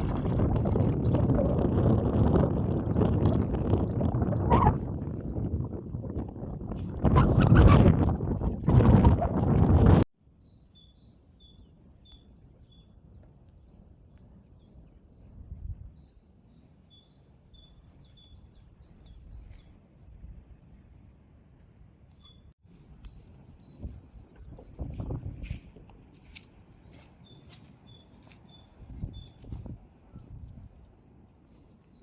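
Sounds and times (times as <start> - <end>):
songbirds chirping: 10.2 - 19.8, 21.5 - 32.0.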